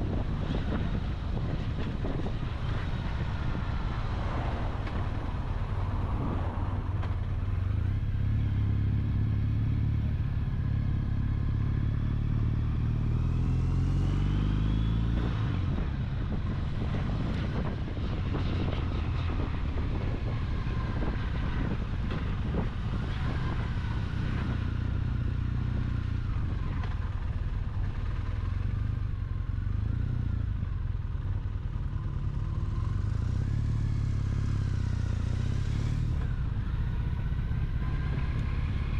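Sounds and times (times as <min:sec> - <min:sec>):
wind and road noise: 0:00.0 - 0:38.9
motorcycle engine accelerating: 0:07.0 - 0:38.9.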